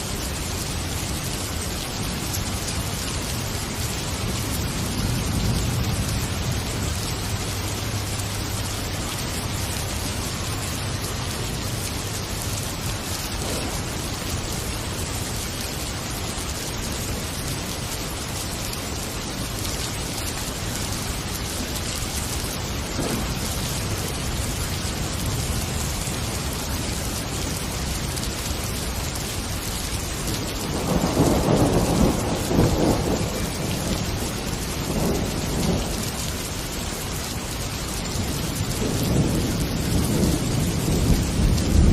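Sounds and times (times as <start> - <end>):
heavy rain falling: 0.0 - 41.9
thunder rumbling: 2.4 - 15.3, 22.6 - 28.3, 30.4 - 36.5, 38.0 - 41.9.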